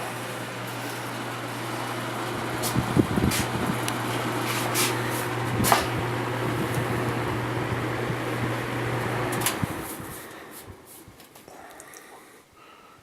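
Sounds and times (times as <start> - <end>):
box fan motor hum: 0.0 - 11.6
fan switch click: 2.6 - 6.9, 9.3 - 9.8.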